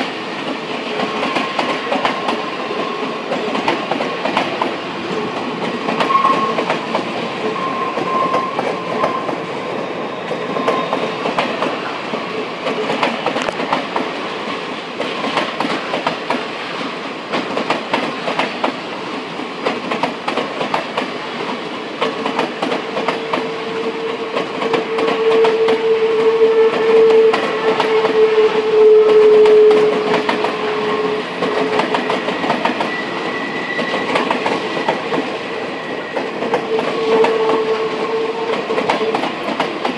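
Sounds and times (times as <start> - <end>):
train wheels clacking on track: 0.0 - 39.9
thin drawn-out squeal: 7.4 - 9.4, 32.4 - 34.2.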